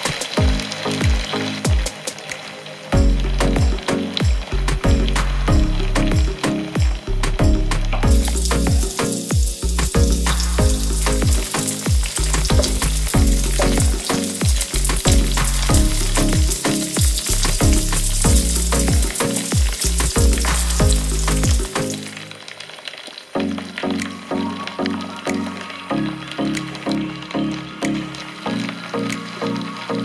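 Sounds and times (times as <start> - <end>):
fish sizzling in oil: 0.0 - 7.2, 8.2 - 30.0
background music with a beat: 0.0 - 22.2.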